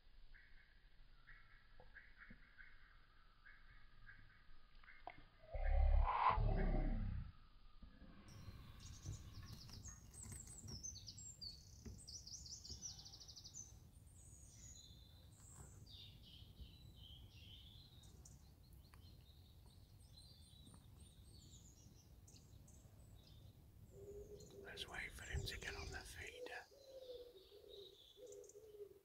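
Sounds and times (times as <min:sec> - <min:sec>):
small birds chirping and trilling: 0:08.3 - 0:29.0.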